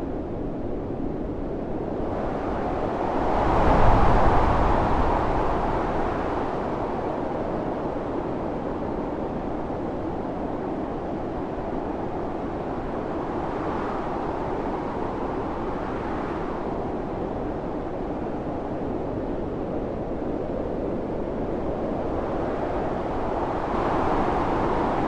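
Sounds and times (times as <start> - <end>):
blizzard wind howling: 0.0 - 25.0.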